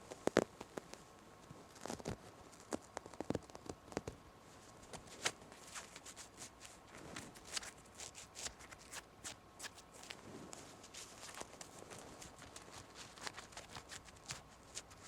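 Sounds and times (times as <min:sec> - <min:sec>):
taps and scratches on fabric: 0:04.9 - 0:15.0.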